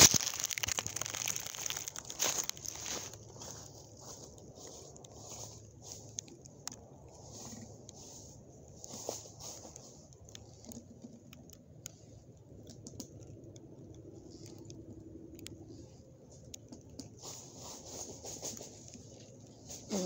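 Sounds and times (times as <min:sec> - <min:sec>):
footsteps on forest trail: 0:00.0 - 0:06.6.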